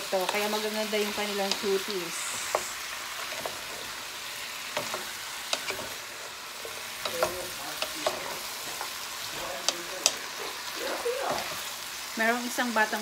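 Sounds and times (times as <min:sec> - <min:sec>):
chicken feet sizzling in a pot: 0:00.0 - 0:13.0
wooden spoon knocking on pot: 0:06.6 - 0:10.2.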